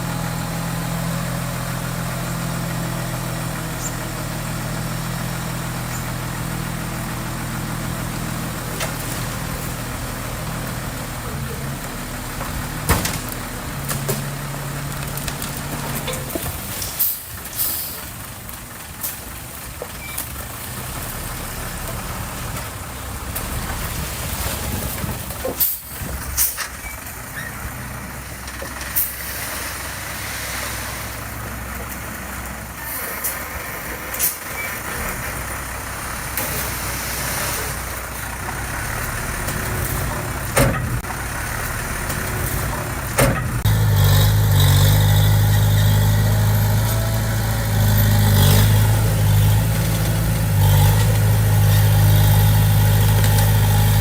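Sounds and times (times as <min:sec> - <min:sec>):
diesel construction machinery running: 0:00.0 - 0:54.0
sharp clanks and knocks: 0:39.4 - 0:41.1, 0:42.0 - 0:43.7.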